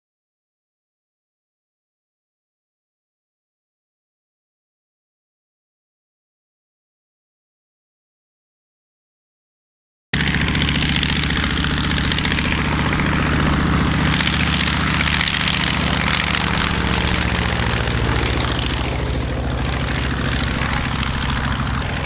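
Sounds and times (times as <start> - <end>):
propeller plane engine running: 10.2 - 22.0.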